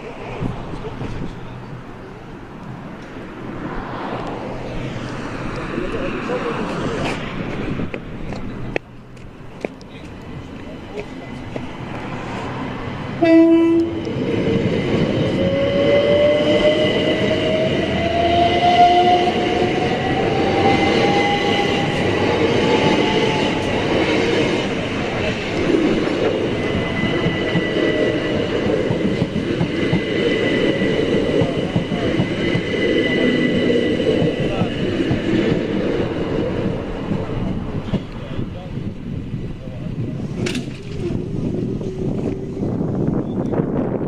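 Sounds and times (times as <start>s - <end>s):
train horn blast: 13.2s - 14.0s
wheels clattering on rail: 20.4s - 39.0s, 39.9s - 43.8s.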